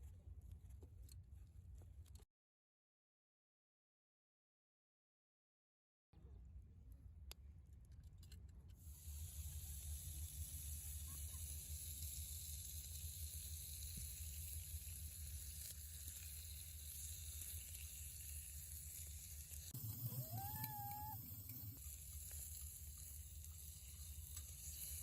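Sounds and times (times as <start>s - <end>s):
short rising call: 19.8s - 21.8s.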